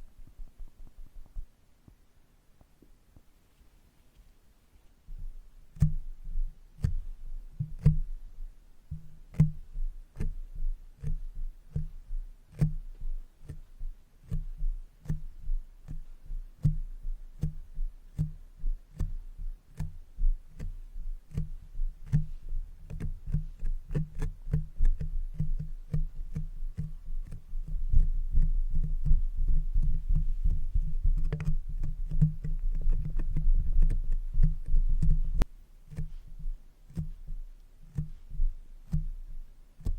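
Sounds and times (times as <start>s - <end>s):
brush tapping on microphone: 5.1s - 8.2s, 8.9s - 39.9s.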